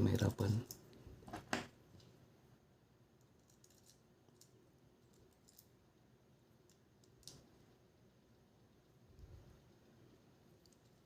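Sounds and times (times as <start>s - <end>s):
faint clicks of small tools: 10.6s - 11.0s.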